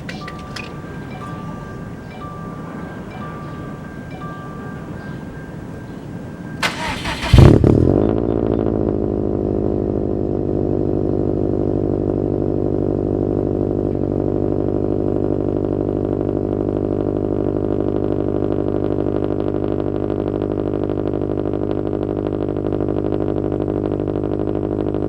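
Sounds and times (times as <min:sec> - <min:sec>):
car engine idling: 0:00.0 - 0:19.9.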